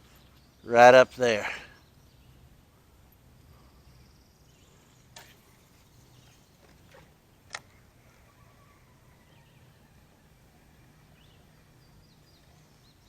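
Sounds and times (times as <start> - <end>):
sharp clicks: 6.6 - 7.8.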